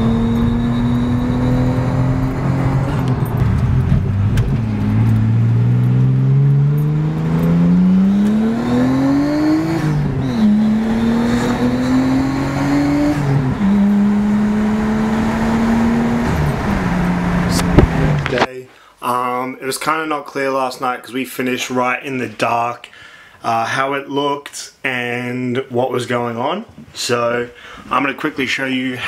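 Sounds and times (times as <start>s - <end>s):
car engine accelerating: 0.0s - 18.5s.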